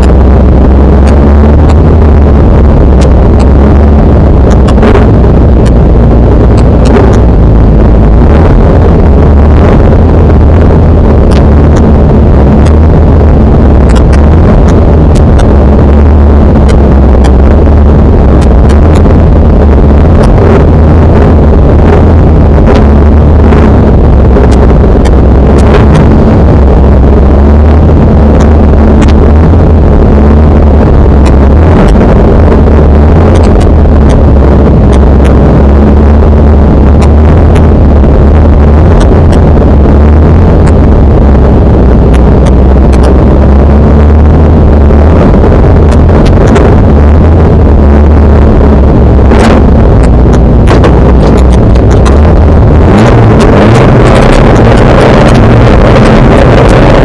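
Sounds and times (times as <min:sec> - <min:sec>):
sharp clicks: 0:00.0 - 0:29.8
car engine idling: 0:00.0 - 0:53.5.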